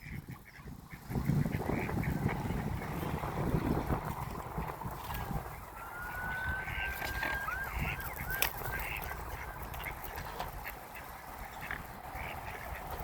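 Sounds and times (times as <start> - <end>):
ducks and geese honking: 0.0 - 13.0
thin rising whistle: 5.8 - 8.5.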